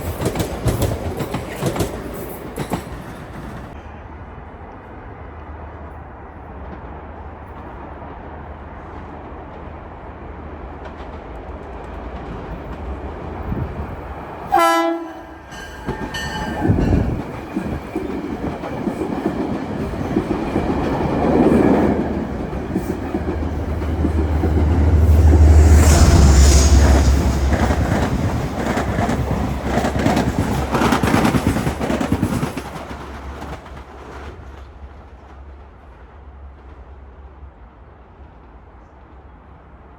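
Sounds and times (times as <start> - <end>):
wheels clacking over rail joints: 0.0 - 3.8, 26.9 - 34.8
train rumbling past: 0.0 - 39.9
train horn blast: 14.5 - 17.1, 24.2 - 28.4.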